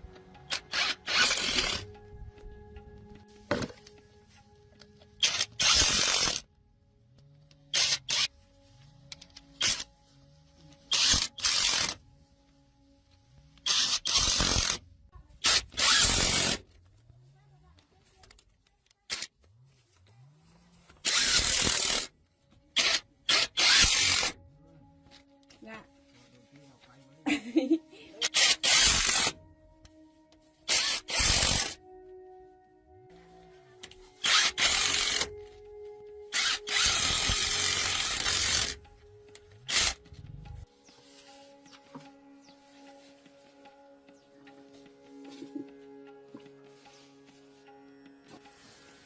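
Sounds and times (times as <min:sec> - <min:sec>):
soft background music: 0:00.0 - 0:49.0
power tool running: 0:00.5 - 0:01.9, 0:05.2 - 0:06.4, 0:10.9 - 0:12.0, 0:13.6 - 0:14.8, 0:15.4 - 0:16.6, 0:20.2 - 0:22.1, 0:22.8 - 0:24.4, 0:28.2 - 0:29.4, 0:30.7 - 0:31.8, 0:34.2 - 0:35.3, 0:36.3 - 0:38.8, 0:39.7 - 0:40.1.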